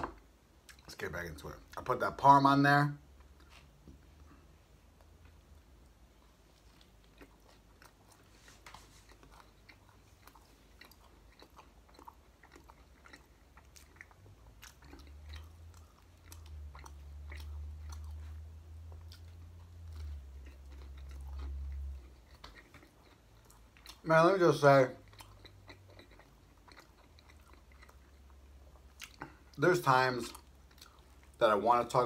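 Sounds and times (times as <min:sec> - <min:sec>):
crunchy bread chewing: 0:03.2 - 0:31.4.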